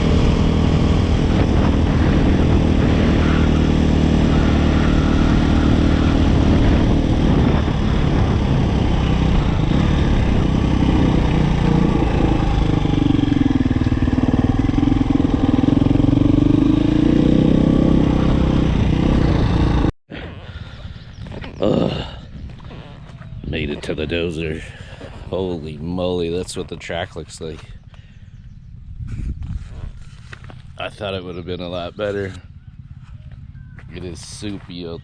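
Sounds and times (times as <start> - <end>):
dirt bike engine revving: 0.0 - 20.7.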